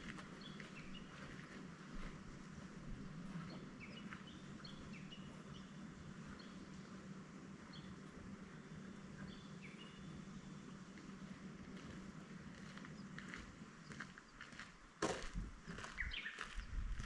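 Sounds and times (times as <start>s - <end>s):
low steady hum: 0.0s - 17.0s
bird chirping: 3.3s - 6.7s, 8.7s - 10.8s, 15.8s - 16.7s.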